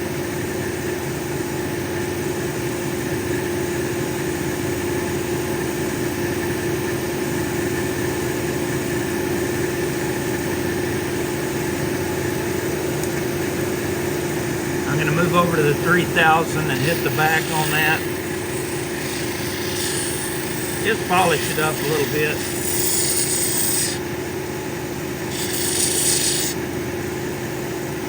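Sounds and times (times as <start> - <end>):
grinding machine motor humming: 13.8 - 24.4, 25.1 - 26.6.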